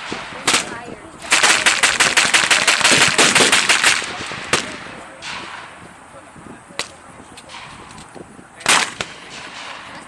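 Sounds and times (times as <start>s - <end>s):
machine gun firing burst: 1.3s - 4.7s
single gunshot: 8.6s - 9.8s.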